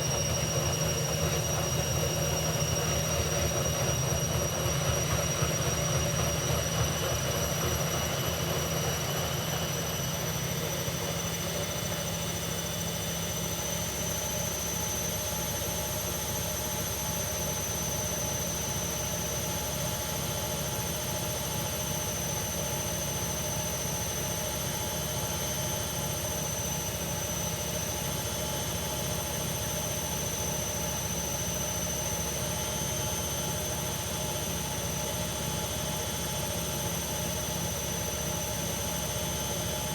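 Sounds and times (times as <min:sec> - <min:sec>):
washing machine spinning: 0:00.0 - 0:13.8.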